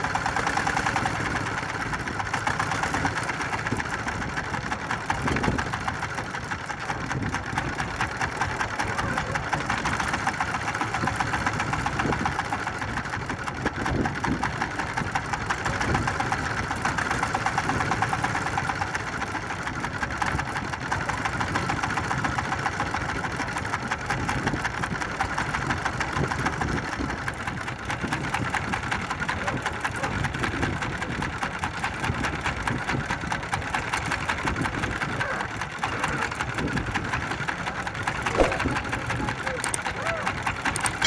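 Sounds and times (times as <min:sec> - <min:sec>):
boat engine running: 0:00.0 - 0:41.0.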